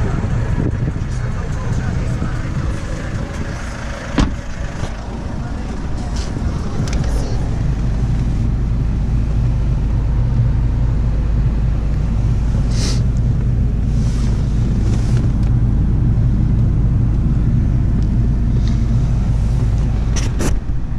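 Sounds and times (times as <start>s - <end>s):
car engine idling: 0.0s - 20.9s.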